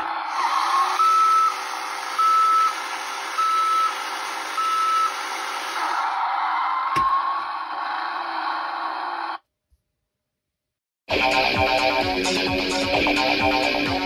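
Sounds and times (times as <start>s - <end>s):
reversing alarm beeping: 0.4s - 5.4s.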